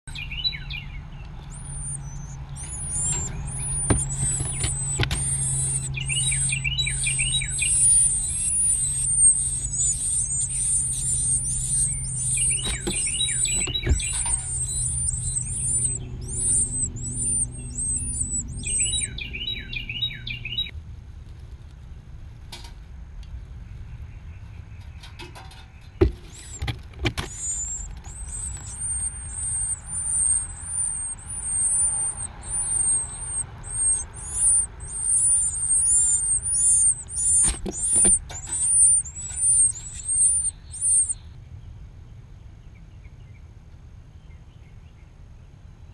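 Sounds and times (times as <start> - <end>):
baby birds begging chirps: 0.0 - 20.7, 23.7 - 41.4
steady low hum: 0.1 - 25.1, 25.8 - 45.9
sharp knocks: 3.1 - 5.3.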